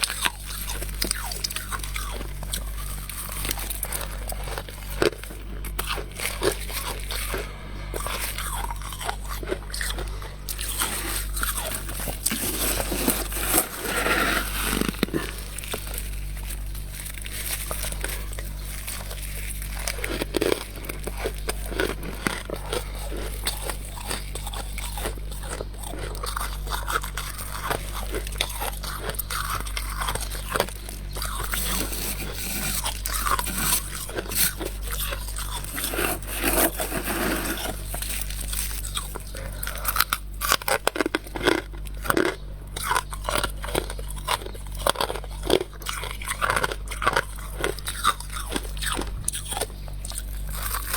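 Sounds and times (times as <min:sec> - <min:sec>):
crunching frost being chewed: 0:00.0 - 0:50.9
low hum: 0:01.8 - 0:25.9.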